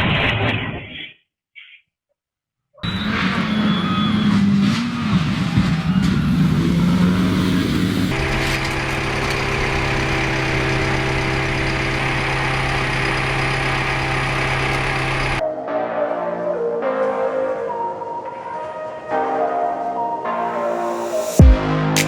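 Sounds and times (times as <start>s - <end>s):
vehicle engine running: 2.8s - 15.4s.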